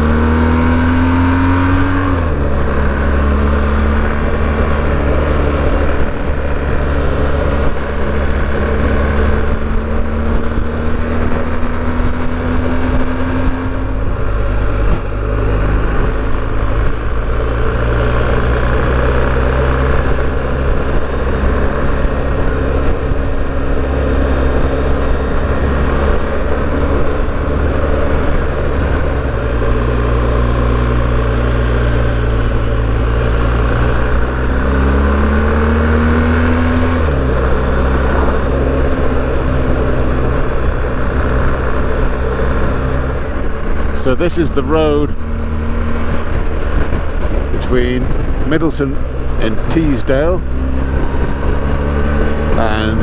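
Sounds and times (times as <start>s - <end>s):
motorcycle engine revving: 0.0s - 53.0s
wind and road noise: 0.0s - 53.0s.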